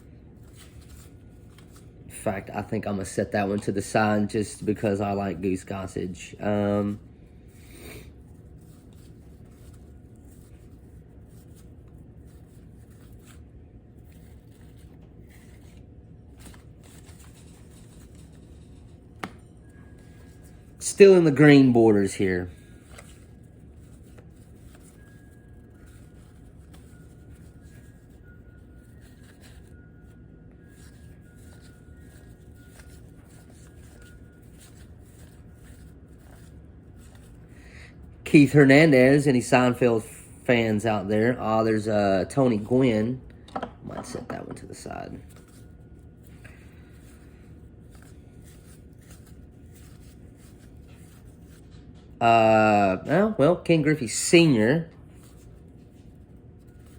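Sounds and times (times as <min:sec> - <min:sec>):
steady low hum: 0:00.0 - 0:56.9
cards sliding and rustling: 0:00.4 - 0:01.9, 0:14.0 - 0:37.5, 0:46.3 - 0:51.7.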